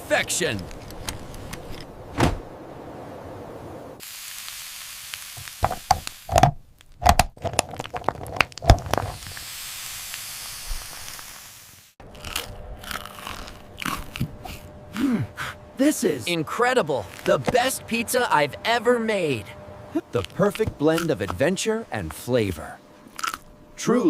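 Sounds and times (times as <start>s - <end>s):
steady hiss: 3.4s - 6.4s, 8.9s - 12.0s
crisp pizza crust crunching: 6.9s - 9.2s, 12.0s - 15.1s.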